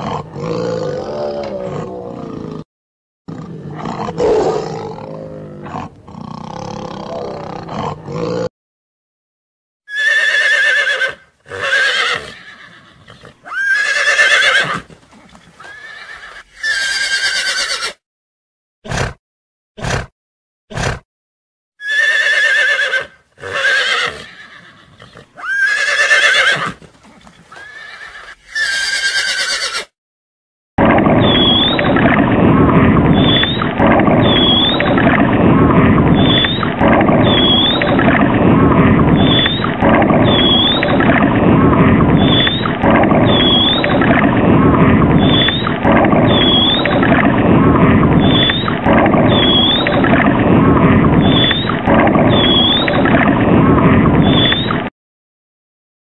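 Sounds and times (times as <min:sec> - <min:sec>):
horses neighing: 0:00.0 - 0:02.6, 0:09.9 - 0:18.0, 0:21.8 - 0:29.9.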